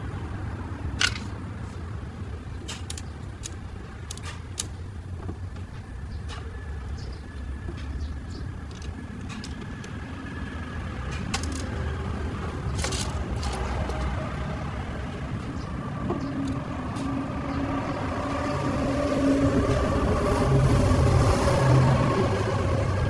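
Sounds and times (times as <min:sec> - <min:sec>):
engine rumbling: 0:00.0 - 0:23.0
sharp clicks: 0:02.6 - 0:04.9.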